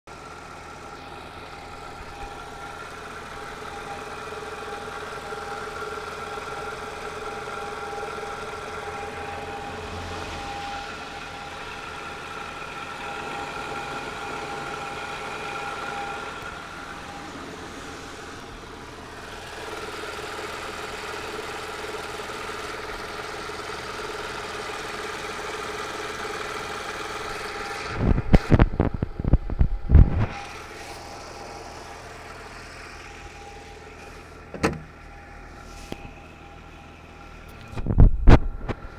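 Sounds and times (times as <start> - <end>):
car engine idling: 0.1 - 38.9
steady engine whine: 0.1 - 38.9.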